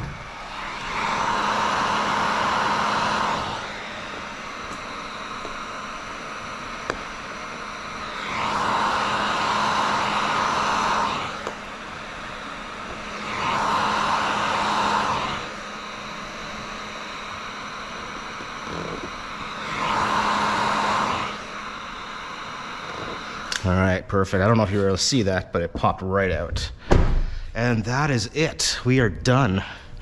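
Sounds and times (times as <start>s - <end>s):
heat gun blowing air: 0.0s - 23.7s
motor hum: 0.0s - 23.7s.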